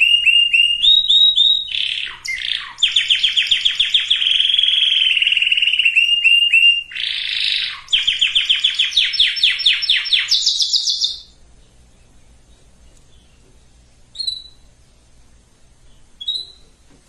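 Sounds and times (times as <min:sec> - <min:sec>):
canary singing trills: 0:00.0 - 0:16.9.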